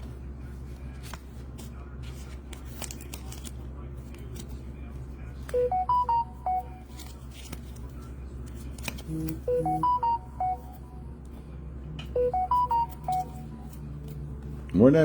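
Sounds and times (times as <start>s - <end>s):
electronic notification chime: 9.3s - 10.8s, 12.2s - 13.5s.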